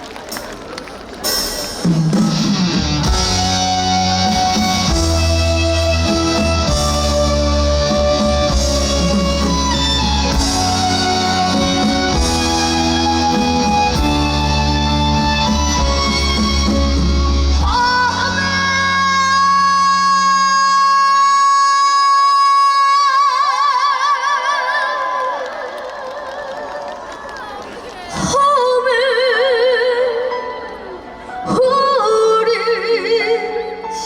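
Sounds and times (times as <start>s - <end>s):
instrumental backing track: 1.2s - 19.7s.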